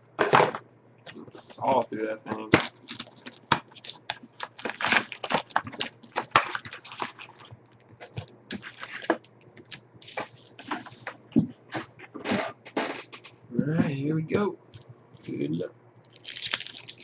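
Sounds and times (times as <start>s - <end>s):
packaging tearing and crinkling: 2.4s - 11.1s, 16.1s - 17.0s.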